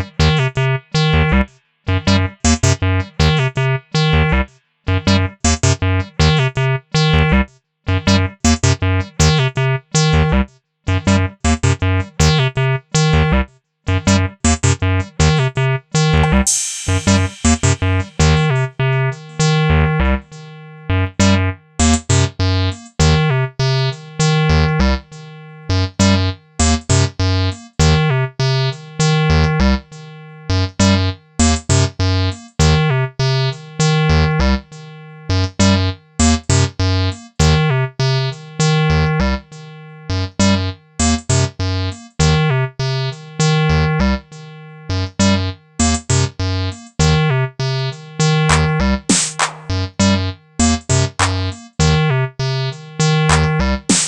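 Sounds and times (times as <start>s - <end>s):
looping synth line: 16.1s - 20.1s.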